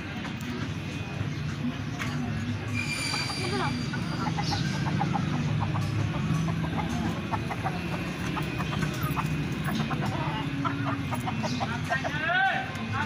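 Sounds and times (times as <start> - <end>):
chickens clucking: 2.0 - 12.2.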